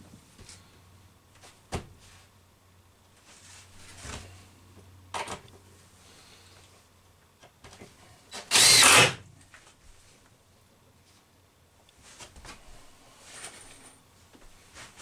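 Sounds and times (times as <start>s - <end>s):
cordless drill driving screw: 8.4s - 9.2s.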